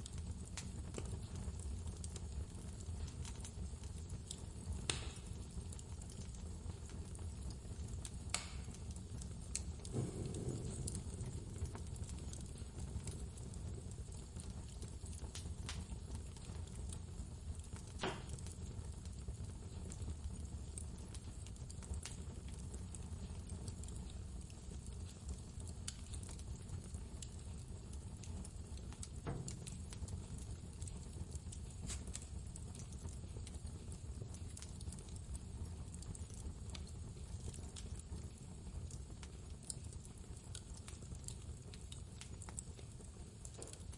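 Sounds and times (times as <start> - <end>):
wood fire crackling and popping: 0.0 - 43.9
blizzard wind rumble: 9.9 - 12.7.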